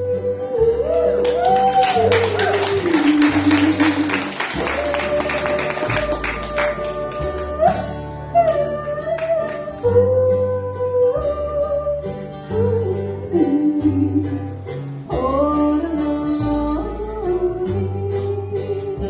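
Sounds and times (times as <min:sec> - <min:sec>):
country band playing live: 0:00.0 - 0:19.0
sliding melody line: 0:00.6 - 0:11.6.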